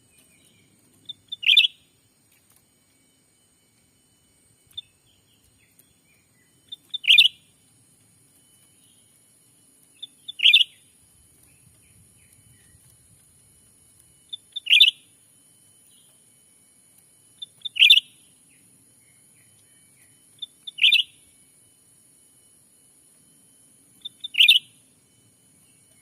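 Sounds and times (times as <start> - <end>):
bird call: 0.0 - 1.9, 4.7 - 7.6, 9.9 - 12.9, 14.3 - 15.1, 17.4 - 21.3, 24.0 - 24.8.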